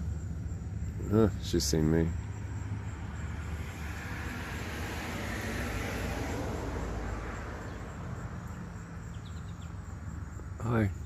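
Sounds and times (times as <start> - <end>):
car driving past: 2.1 - 9.9.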